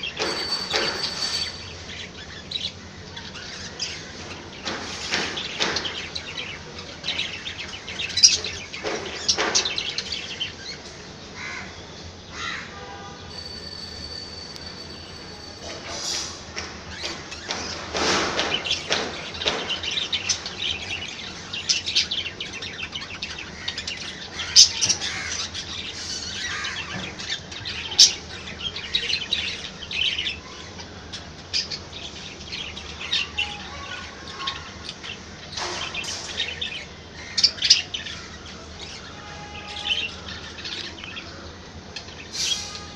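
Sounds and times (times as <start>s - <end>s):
sharp squeaks: 0.0s - 2.2s, 13.3s - 17.8s, 42.3s - 42.9s
budgerigars chirping and chattering: 0.0s - 11.6s, 15.8s - 42.9s.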